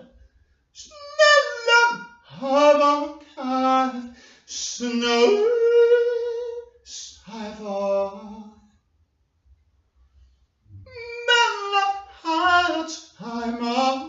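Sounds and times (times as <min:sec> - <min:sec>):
person singing unaccompanied: 0:00.8 - 0:08.6, 0:10.9 - 0:14.0.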